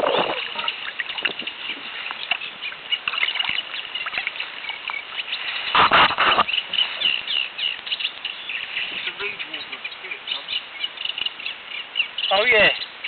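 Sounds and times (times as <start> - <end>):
songbird scratchy chirping: 0.0 - 13.0
rush of noise: 5.7 - 6.5.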